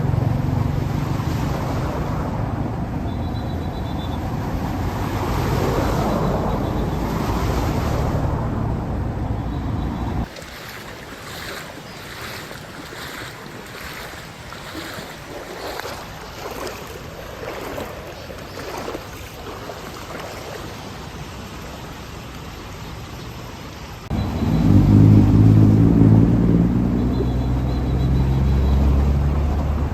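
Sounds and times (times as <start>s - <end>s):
floodwater rushing on street: 0.0s - 29.9s
loud low rumble: 24.1s - 27.1s.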